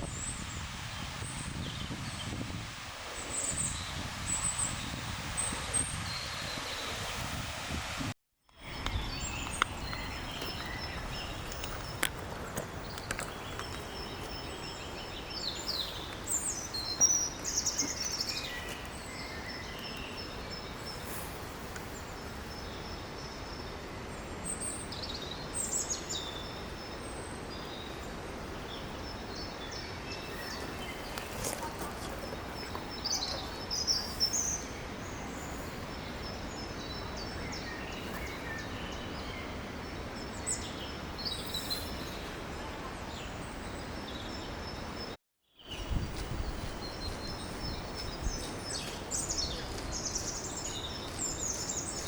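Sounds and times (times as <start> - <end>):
outdoor background hiss: 0.0 - 52.0
small birds chirping: 8.5 - 52.0.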